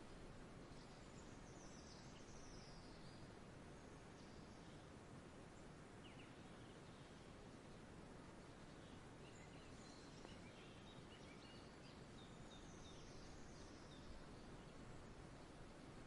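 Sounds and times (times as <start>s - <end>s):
low outdoor hiss: 0.0s - 16.0s
faint bird chirps: 0.6s - 4.9s, 5.5s - 7.8s, 8.4s - 15.9s.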